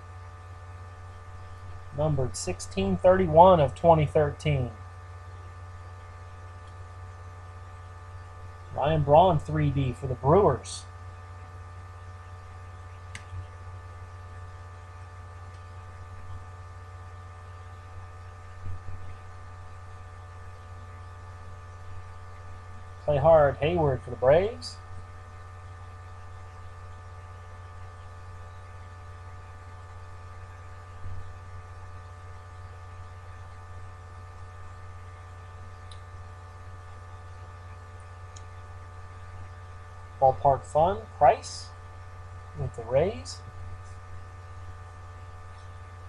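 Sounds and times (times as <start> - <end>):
electrical mains hum: 0.0 - 46.0
faint click: 13.1 - 13.4
high-pitched whine: 42.5 - 44.0.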